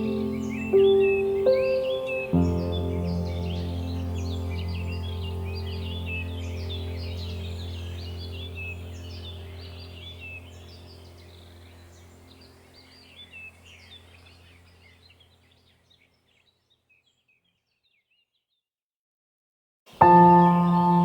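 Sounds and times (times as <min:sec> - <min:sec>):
birds chirping and twittering: 0:00.0 - 0:18.6
low steady hum: 0:02.6 - 0:15.6.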